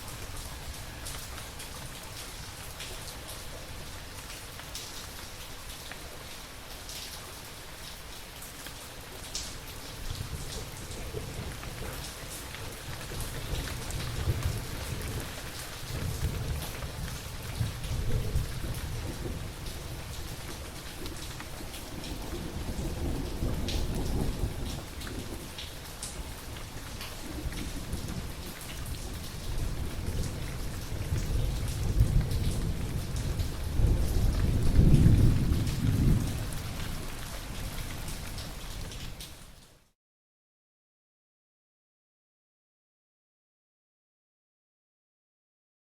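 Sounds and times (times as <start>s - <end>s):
steady rain falling: 0.0s - 40.0s
low rumbling thunder: 10.1s - 25.7s, 27.2s - 37.3s.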